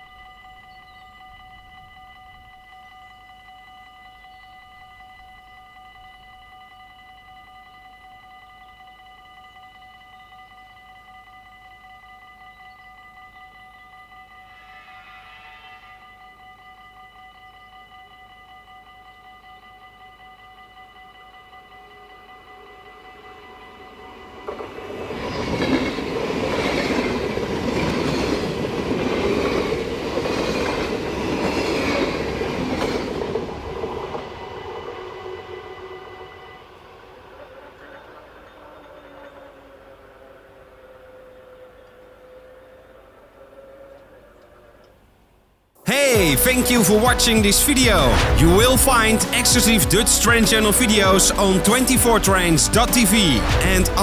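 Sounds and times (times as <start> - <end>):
level crossing warning bells ringing: 0.0 - 45.2, 45.8 - 54.0
train wheels clattering on rails: 23.3 - 42.6.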